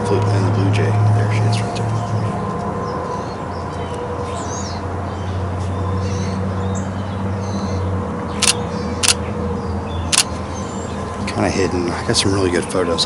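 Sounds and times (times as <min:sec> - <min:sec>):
small birds chirping: 0:01.3 - 0:13.0
camera shutter clicks: 0:08.4 - 0:09.2.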